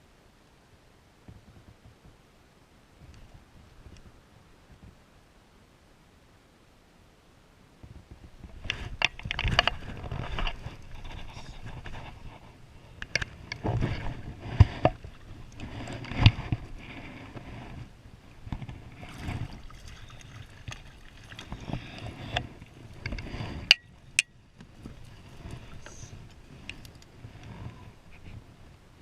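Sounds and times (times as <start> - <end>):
knocks and scrapes on kayak: 7.8 - 28.8
water noise: 7.8 - 29.0.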